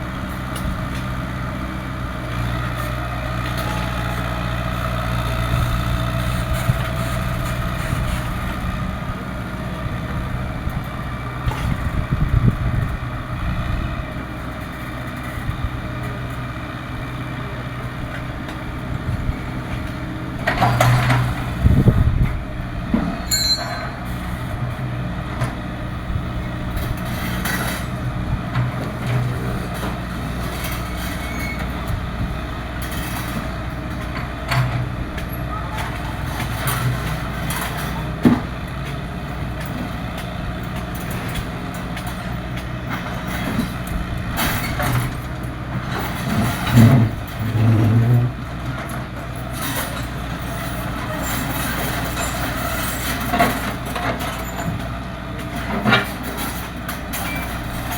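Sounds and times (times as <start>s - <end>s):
excavator diesel engine running: 0.0s - 57.9s
loud knocking and scraping: 45.8s - 48.4s.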